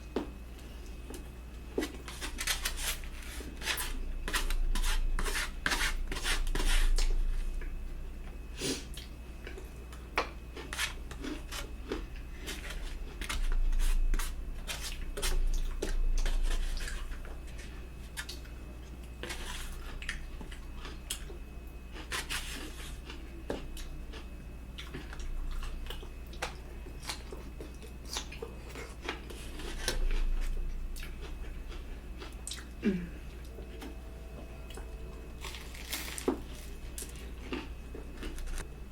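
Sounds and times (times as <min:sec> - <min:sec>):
chewing and mouth sounds: 0:22.0 - 0:34.0, 0:34.7 - 0:38.7.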